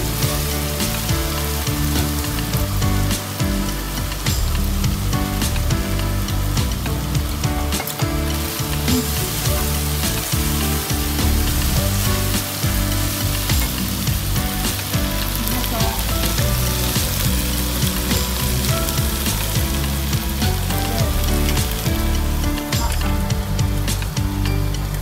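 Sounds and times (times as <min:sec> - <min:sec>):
meat sizzling in frying pan: 0:08.2 - 0:22.4.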